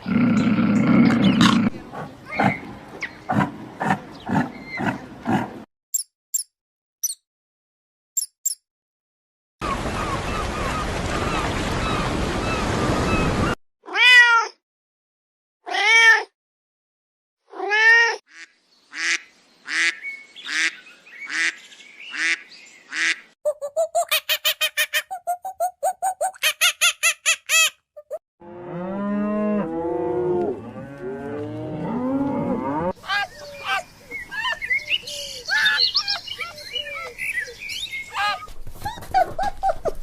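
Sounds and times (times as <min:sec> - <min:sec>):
cat meowing: 0:13.9 - 0:14.6.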